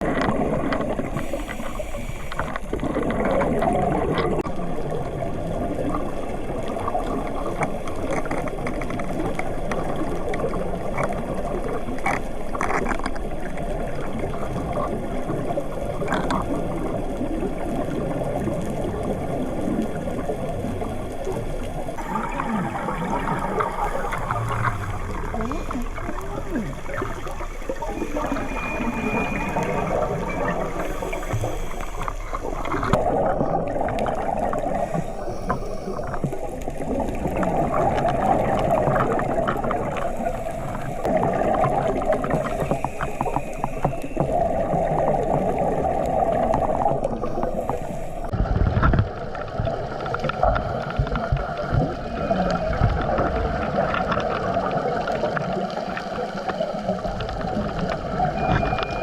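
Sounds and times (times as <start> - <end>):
gurgling bubbling water: 0.0 - 59.0
low rumble: 21.9 - 48.5.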